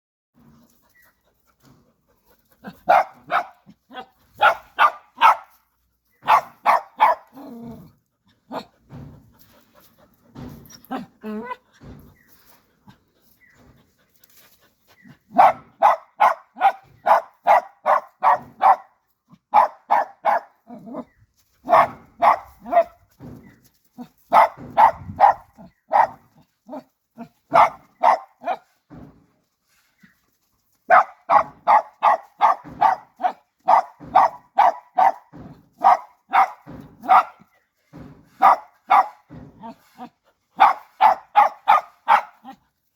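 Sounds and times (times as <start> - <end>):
dog barking: 2.9 - 5.6, 6.2 - 7.4, 15.3 - 18.9, 19.5 - 20.6, 21.7 - 22.9, 24.3 - 26.8, 27.5 - 28.6, 30.9 - 37.4, 38.4 - 39.2, 40.6 - 42.6.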